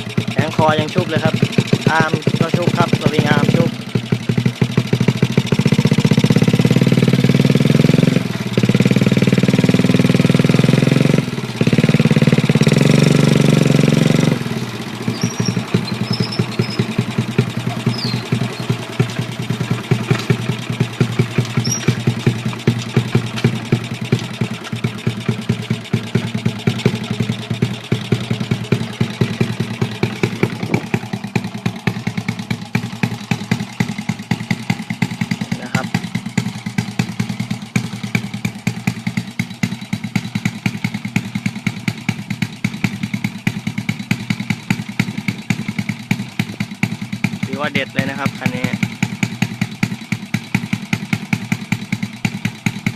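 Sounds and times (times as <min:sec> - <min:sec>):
minibike engine revving and idling: 0:00.0 - 0:52.9.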